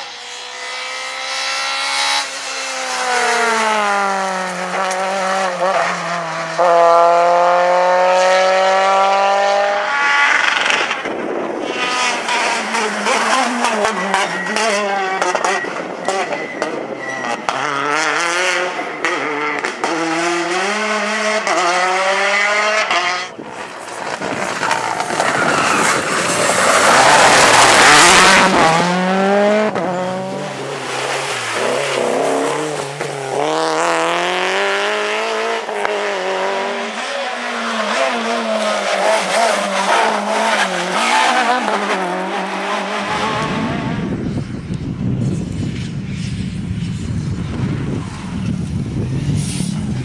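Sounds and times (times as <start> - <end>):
rally car engines revving: 0.0 - 50.0
tyre squeal: 12.6 - 17.8, 23.6 - 28.8
loud rush of noise: 23.3 - 37.0.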